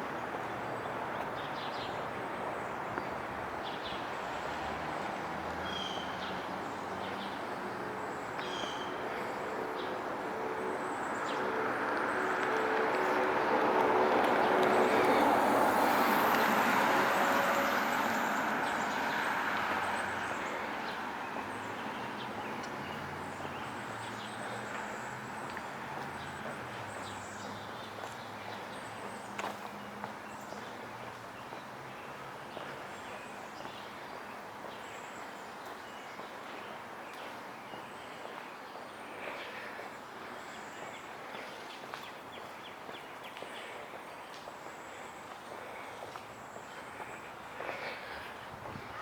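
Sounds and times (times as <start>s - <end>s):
street traffic: 0.0s - 49.0s
vehicle passing close: 10.1s - 23.4s.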